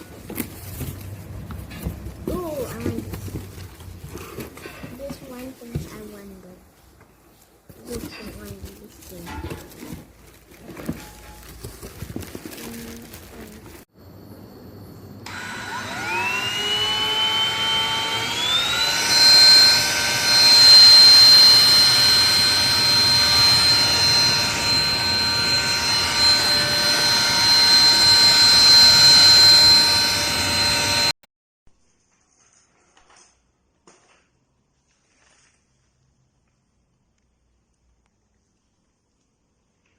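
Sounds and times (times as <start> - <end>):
vacuum cleaner motor whining: 15.2 - 31.2.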